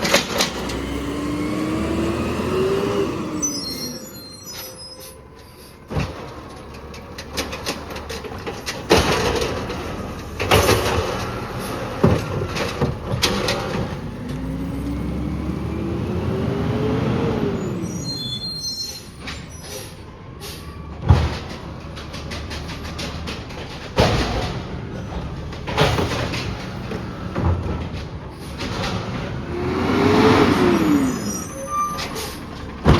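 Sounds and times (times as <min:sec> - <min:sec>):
truck engine revving: 0:00.0 - 0:04.6, 0:06.3 - 0:18.6, 0:21.6 - 0:32.9
garbage truck arm bangs and clanks: 0:05.9 - 0:14.0, 0:21.0 - 0:29.5, 0:32.0 - 0:32.9.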